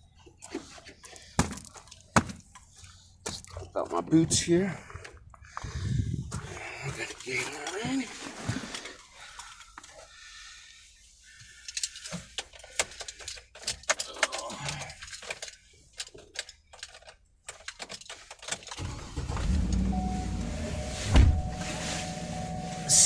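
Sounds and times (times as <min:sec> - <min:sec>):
clicks and jangling rattles: 0:11.6 - 0:18.8
car engine starting and idling: 0:18.7 - 0:23.0.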